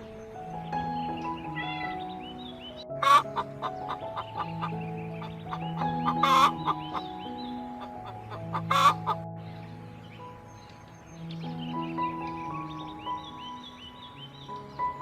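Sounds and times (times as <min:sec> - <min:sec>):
background music: 0:00.0 - 0:15.0
chicken clucking: 0:03.0 - 0:07.1, 0:07.8 - 0:09.2.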